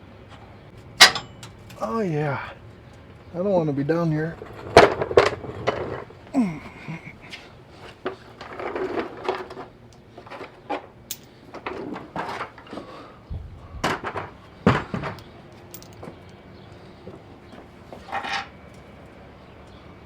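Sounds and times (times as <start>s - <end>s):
hand tools clinking on metal: 0.3s - 2.4s, 4.0s - 12.8s, 15.0s - 16.4s.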